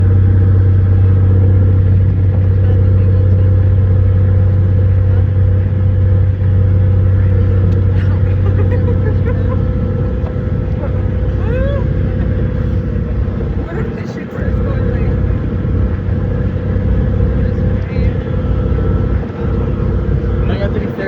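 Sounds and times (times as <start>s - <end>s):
boat engine humming: 0.0s - 21.0s.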